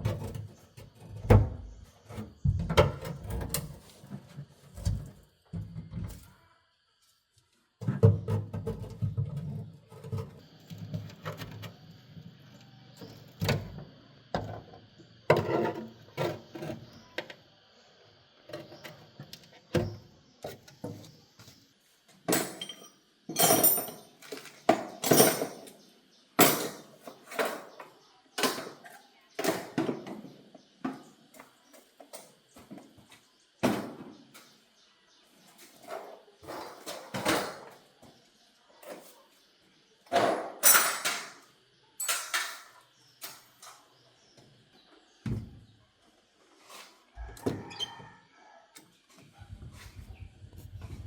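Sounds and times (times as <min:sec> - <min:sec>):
car parts and tools clattering: 0:22.3 - 0:25.8, 0:26.4 - 0:27.8, 0:40.1 - 0:43.8.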